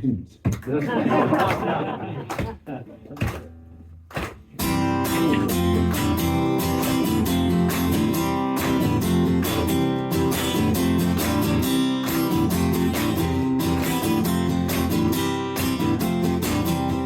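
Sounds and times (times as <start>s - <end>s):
guitar strummed: 4.5s - 17.0s.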